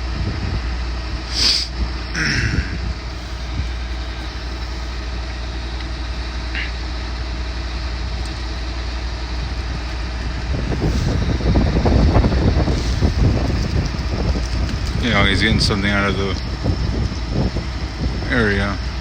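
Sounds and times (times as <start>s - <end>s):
wind on microphone: 0.0s - 4.9s, 8.1s - 19.0s
diesel engine idling: 0.0s - 19.0s.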